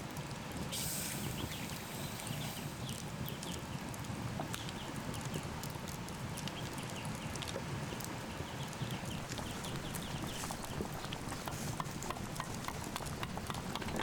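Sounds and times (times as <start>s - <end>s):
campfire crackling and popping: 0.0s - 14.0s
low fire rumble: 0.0s - 14.0s.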